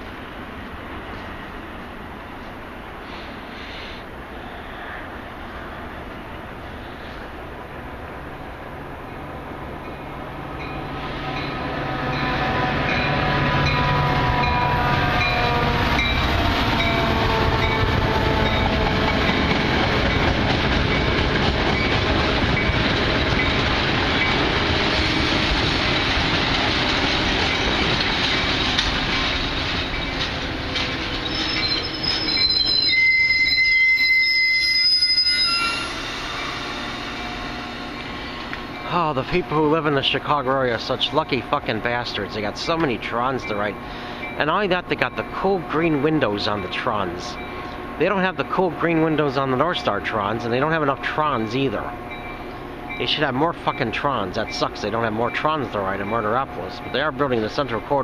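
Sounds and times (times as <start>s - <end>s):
train rail roar: 0.0s - 58.0s
wheels squealing on rails: 9.8s - 44.5s.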